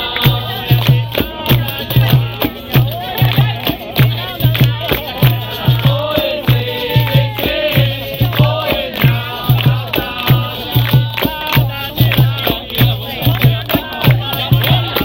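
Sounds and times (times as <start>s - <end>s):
group singing: 0.0s - 15.0s
tambourine jingles: 0.0s - 15.0s.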